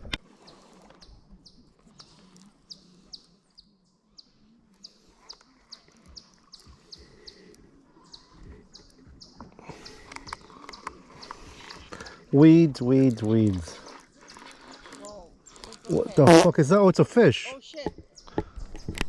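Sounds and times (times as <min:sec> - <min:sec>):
bird chirping: 0:01.0 - 0:16.5.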